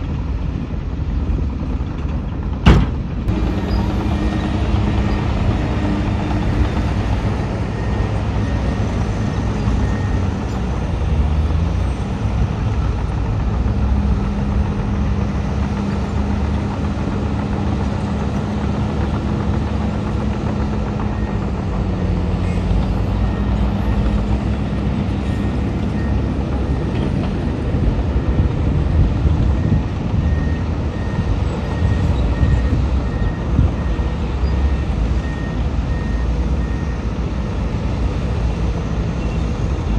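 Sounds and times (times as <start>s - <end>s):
heavy diesel machinery running: 0.0s - 39.9s
reversing alarm beeping: 27.5s - 37.2s.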